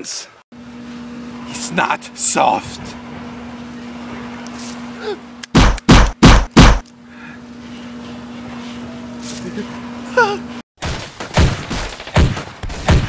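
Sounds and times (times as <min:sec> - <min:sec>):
steady low hum: 0:00.0 - 0:13.0
loud gunshots: 0:05.5 - 0:06.8, 0:10.8 - 0:13.0.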